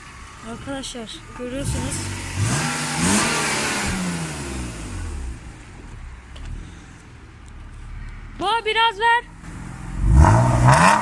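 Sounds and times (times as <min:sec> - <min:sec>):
car engine revving: 0:00.0 - 0:07.0, 0:09.4 - 0:11.0.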